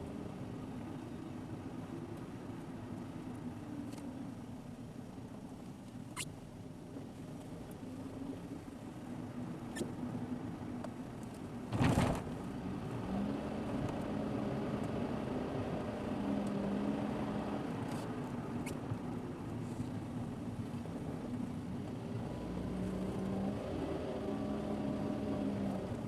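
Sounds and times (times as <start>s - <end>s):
car engine hum: 0.0s - 26.0s
tyre and road noise: 11.2s - 14.2s.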